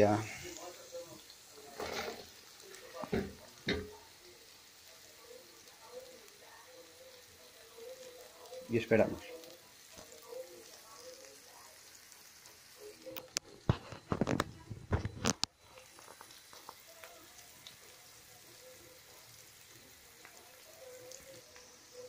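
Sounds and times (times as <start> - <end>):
vegetables frying in oil: 0.0 - 22.0.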